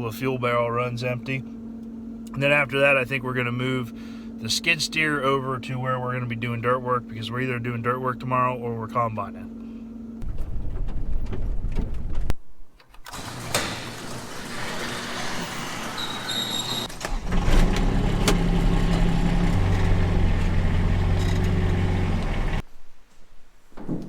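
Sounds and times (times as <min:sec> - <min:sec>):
skid steer engine running: 0:13.1 - 0:22.6.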